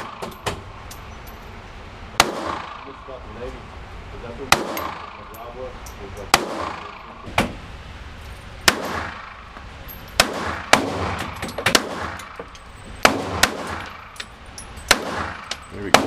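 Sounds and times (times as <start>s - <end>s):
gunshots with ringing echo: 2.2s - 3.1s, 4.5s - 5.4s, 6.3s - 7.2s, 8.6s - 9.5s, 10.2s - 12.4s, 13.0s - 14.2s, 14.8s - 16.0s.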